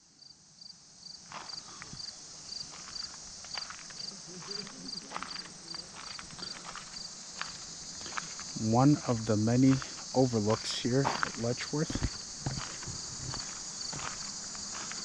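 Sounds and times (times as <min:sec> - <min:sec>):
high insect hiss: 0:00.0 - 0:15.0
insect chirping in pulsed trills: 0:00.1 - 0:15.0
footsteps: 0:01.3 - 0:15.0
faint distant voices: 0:04.0 - 0:06.8.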